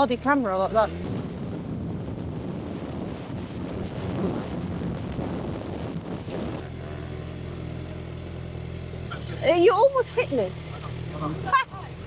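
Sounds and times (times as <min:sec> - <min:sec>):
wind rushing over microphone: 0:00.0 - 0:09.1
motorcycle engine: 0:00.0 - 0:12.0.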